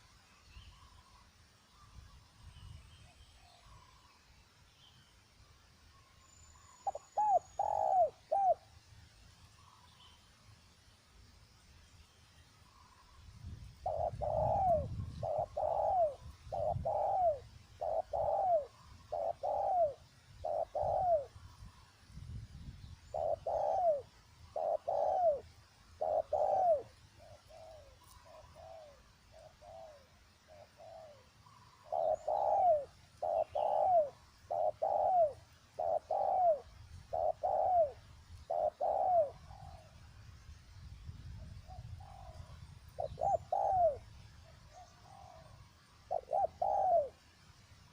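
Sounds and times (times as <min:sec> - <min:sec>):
dove cooing: 0:06.8 - 0:08.7, 0:13.8 - 0:21.4, 0:23.1 - 0:40.0, 0:41.6 - 0:47.2.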